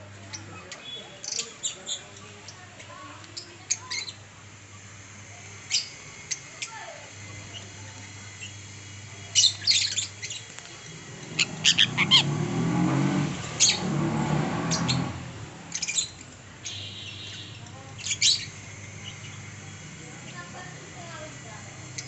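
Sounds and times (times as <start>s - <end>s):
birds squawking: 0.2s - 2.7s, 3.4s - 4.3s, 5.5s - 22.0s
low rumbling noise: 8.2s - 16.6s.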